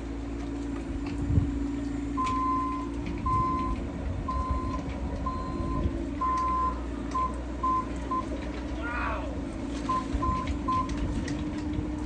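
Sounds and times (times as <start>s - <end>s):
engine running: 0.0s - 12.0s
backup alarm beeping: 2.2s - 8.3s.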